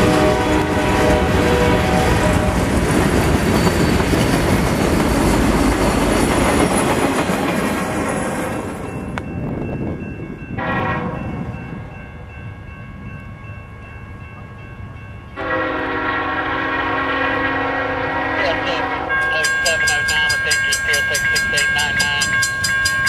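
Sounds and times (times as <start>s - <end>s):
distant locomotive air horn: 0.0s - 2.7s, 10.6s - 11.3s, 15.4s - 19.6s
freight train cars rolling on rails: 0.0s - 23.0s.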